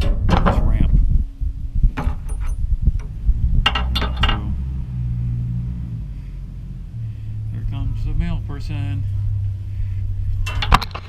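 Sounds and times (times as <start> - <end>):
vehicle engine rumbling: 0.0 - 11.0
metallic clicks and clinks: 2.0 - 4.5, 10.4 - 11.0.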